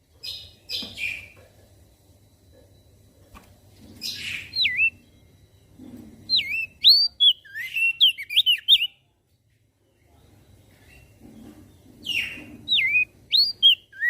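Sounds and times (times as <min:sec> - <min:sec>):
bird singing whistled notes: 0:04.0 - 0:05.3, 0:06.3 - 0:09.0, 0:12.1 - 0:14.0.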